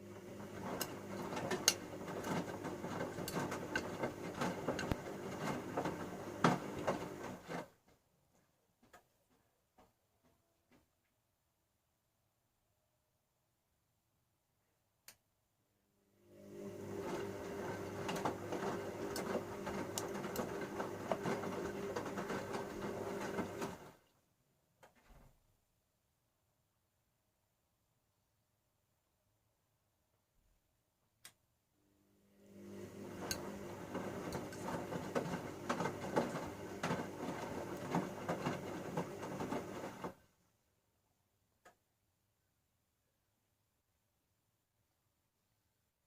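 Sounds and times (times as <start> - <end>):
washing machine motor humming: 0.0 - 7.7, 16.2 - 24.0, 32.2 - 40.2
laundry tumbling in drum: 0.6 - 7.7, 33.0 - 40.2.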